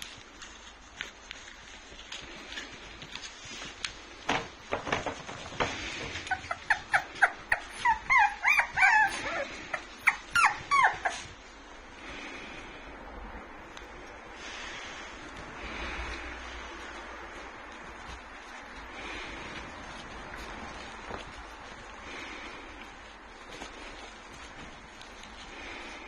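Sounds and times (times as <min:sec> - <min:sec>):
dog whimpering: 0:06.1 - 0:11.4.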